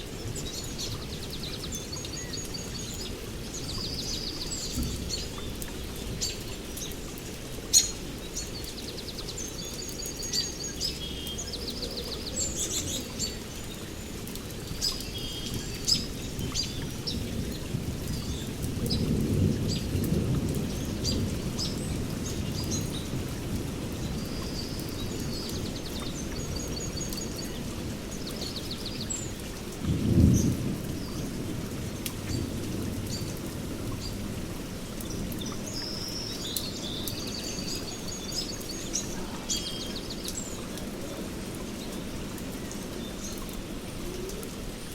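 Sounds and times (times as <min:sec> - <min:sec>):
birds chirping and trilling: 0:00.0 - 0:23.2, 0:35.0 - 0:44.4
sharp water drips: 0:00.0 - 0:44.9
steady rain: 0:00.0 - 0:44.9
thunder rumbling: 0:15.5 - 0:25.8, 0:29.8 - 0:35.4.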